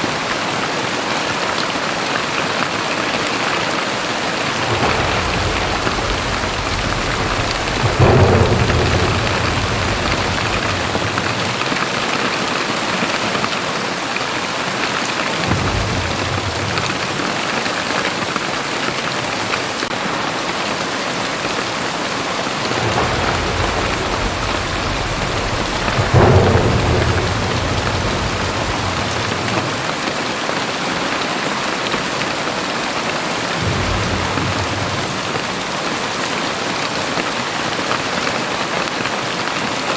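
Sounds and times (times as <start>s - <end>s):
heavy rain pouring: 0.0s - 39.9s
low rumble: 4.3s - 12.3s, 15.4s - 17.6s, 22.2s - 30.1s, 33.6s - 36.2s.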